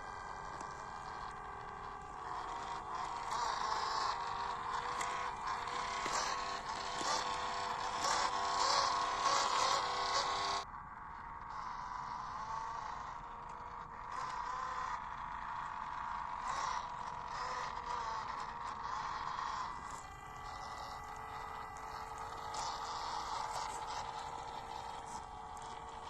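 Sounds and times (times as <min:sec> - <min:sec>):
tyres crunching on trail: 0:00.0 - 0:10.6, 0:19.7 - 0:26.0
toy truck motor whining: 0:00.0 - 0:26.0.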